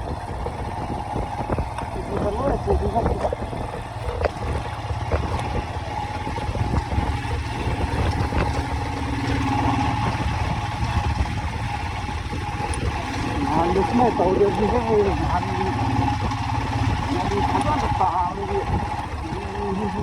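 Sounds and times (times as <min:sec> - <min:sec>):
road and wind noise: 0:00.0 - 0:20.0
vehicle engine rumbling: 0:00.0 - 0:20.0.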